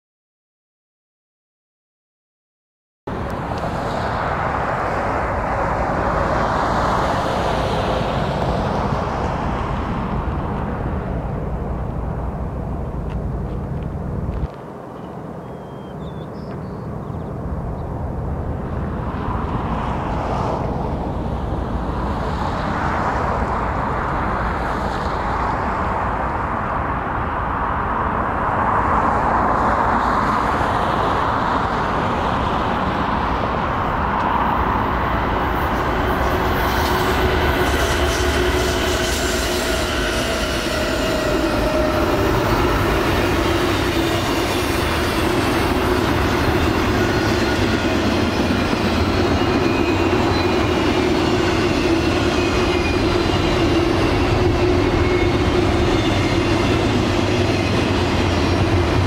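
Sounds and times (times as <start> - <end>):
diesel locomotive engine rumble: 3.1 - 14.7, 16.9 - 59.0
train wheel and rail noise: 3.1 - 59.0
wheels squealing: 35.4 - 59.0.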